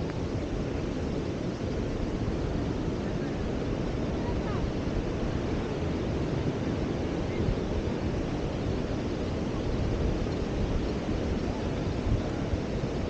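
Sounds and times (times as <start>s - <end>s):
surf on a beach: 0.0s - 13.0s
wind rumbling on microphone: 0.0s - 13.0s.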